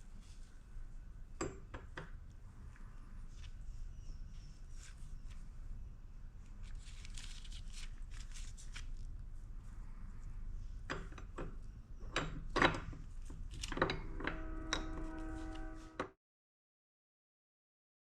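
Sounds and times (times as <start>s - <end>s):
steady low hum: 0.0s - 16.0s
tools rubbing and scraping: 13.9s - 16.1s.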